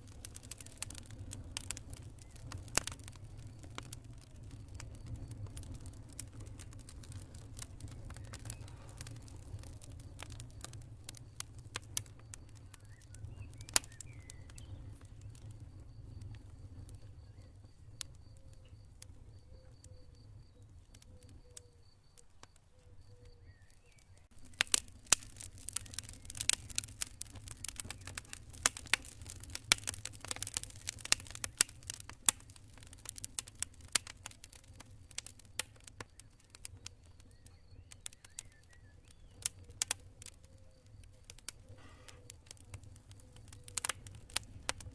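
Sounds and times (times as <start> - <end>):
campfire crackling and popping: 0.0 - 44.9
low rumble of flames: 0.0 - 44.9
cricket chirping: 9.8 - 24.5.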